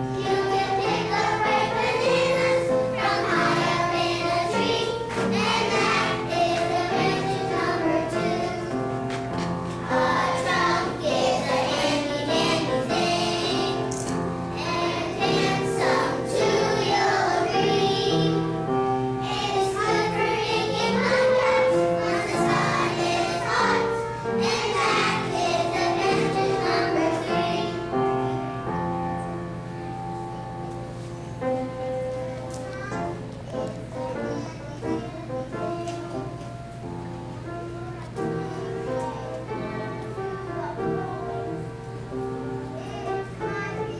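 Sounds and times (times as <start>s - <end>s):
children singing: 0.0s - 8.9s, 9.8s - 18.6s, 19.2s - 28.4s, 38.3s - 41.7s, 42.8s - 43.9s.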